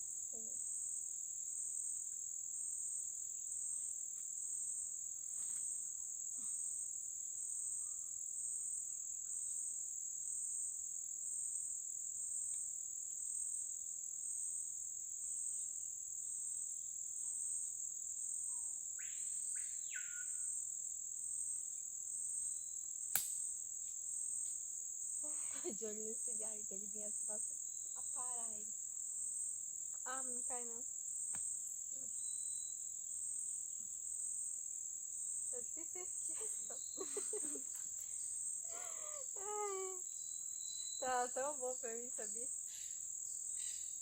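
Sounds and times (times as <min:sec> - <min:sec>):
insect chorus buzzing: 0:00.0 - 0:44.0
bird whistled call: 0:19.6 - 0:20.4
sharp click: 0:23.1 - 0:23.4.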